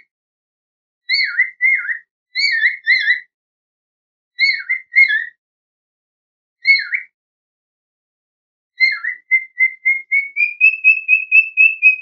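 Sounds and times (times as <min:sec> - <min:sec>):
bird whistled calls: 0:01.1 - 0:03.3, 0:04.4 - 0:05.4, 0:06.6 - 0:07.2, 0:08.8 - 0:12.0.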